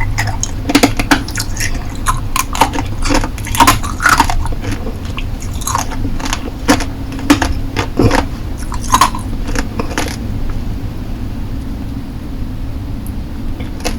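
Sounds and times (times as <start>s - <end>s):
hard candy crunching: 0.0s - 10.2s
low background hum: 0.0s - 13.9s.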